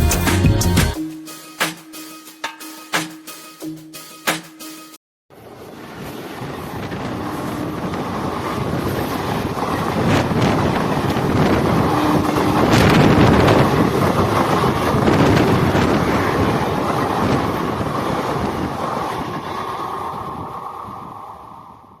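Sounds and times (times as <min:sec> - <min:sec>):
train rumble and wheel noise: 0:05.4 - 0:22.0
wind on microphone: 0:05.5 - 0:22.0.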